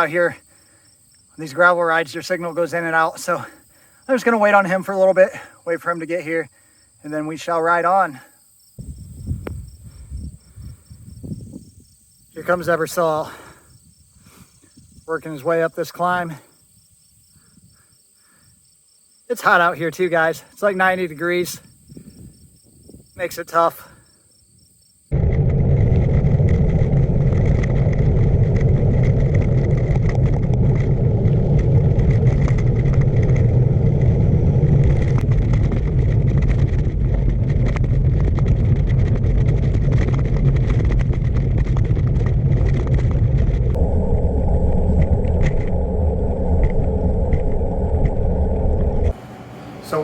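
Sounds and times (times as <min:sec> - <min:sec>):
wind rushing over microphone: 0:08.8 - 0:15.5, 0:21.6 - 0:23.4, 0:25.1 - 0:50.0.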